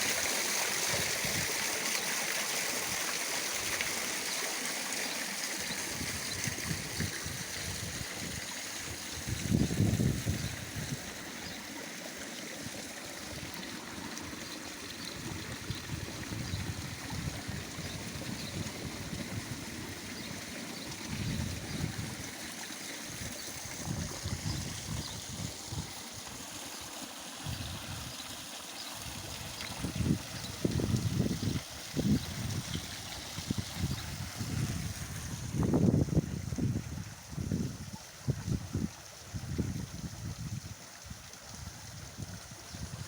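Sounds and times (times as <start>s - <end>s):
waterfall splashing into pool: 0.0s - 16.2s.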